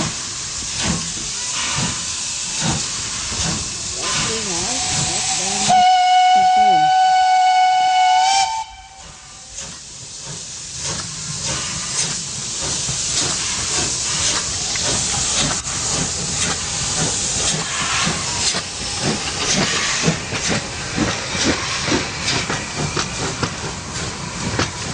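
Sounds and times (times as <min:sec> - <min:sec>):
steady hiss of steam: 0:00.0 - 0:24.9
steam locomotive whistle: 0:04.6 - 0:09.6.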